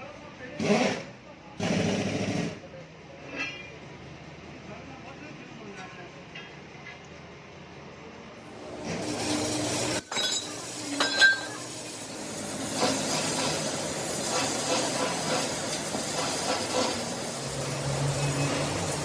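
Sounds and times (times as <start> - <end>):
ringing metal clinks: 10.1 - 11.7.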